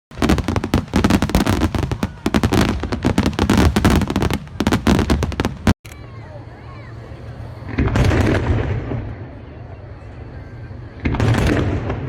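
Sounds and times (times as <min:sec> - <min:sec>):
fireworks bangs and crackles: 0:00.1 - 0:05.8, 0:07.6 - 0:09.7, 0:10.3 - 0:12.0.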